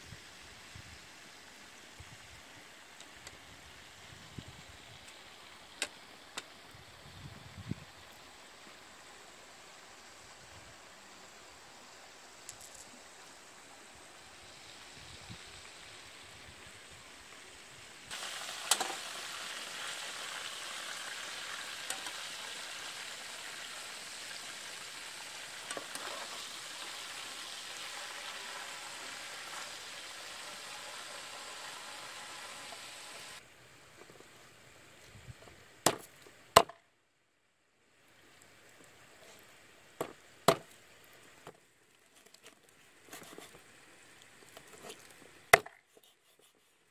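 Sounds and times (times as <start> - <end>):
faint steady hiss: 0.0 - 46.9
chicken frying in hot oil: 14.4 - 33.4.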